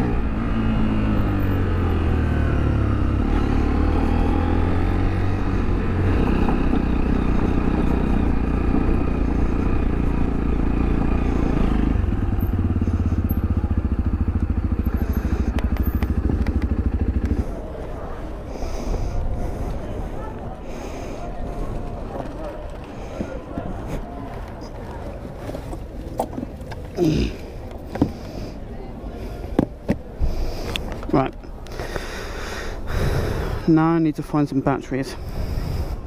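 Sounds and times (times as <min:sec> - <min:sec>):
motorcycle engine running: 0:00.0 - 0:24.2.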